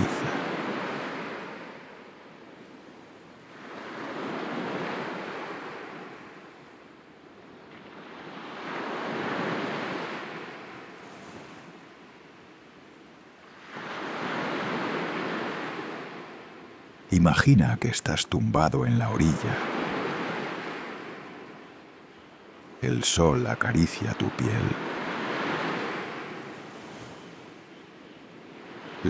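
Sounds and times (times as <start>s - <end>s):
sea waves washing onto shore: 0.0s - 6.7s, 13.4s - 21.7s, 22.7s - 27.6s.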